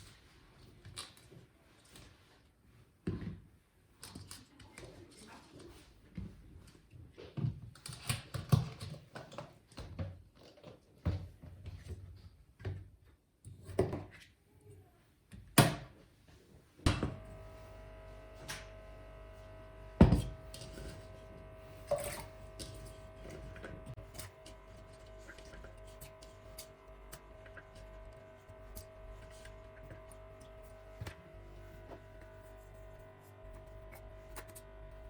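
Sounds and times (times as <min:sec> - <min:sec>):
machine hum with held tones: 0:16.9 - 0:35.0.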